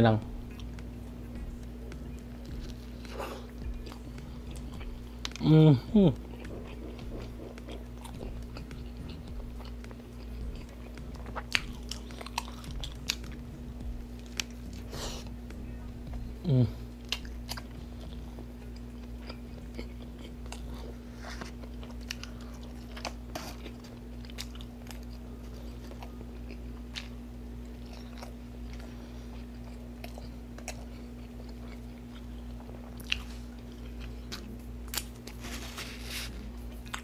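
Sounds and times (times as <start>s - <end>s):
low hum: 0.0s - 37.0s
wet chewing mouth sounds: 0.4s - 5.4s, 6.1s - 37.0s
paper napkin rustle: 35.3s - 36.5s.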